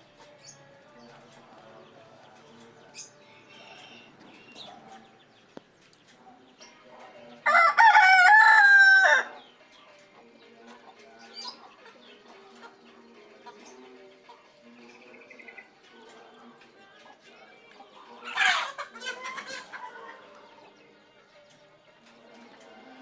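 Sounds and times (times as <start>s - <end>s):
rooster crowing: 7.5s - 9.3s.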